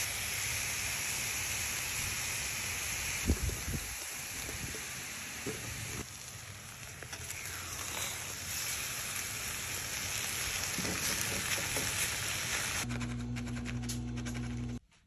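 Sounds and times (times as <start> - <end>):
meat and potatoes sizzling: 0.0 - 12.9
spatula turning food: 6.8 - 14.8.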